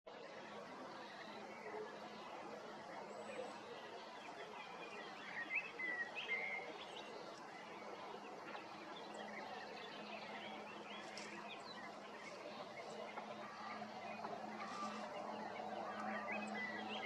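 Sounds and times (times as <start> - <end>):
songbirds chirping: 0.1 - 17.0
steady low hum: 7.1 - 17.0.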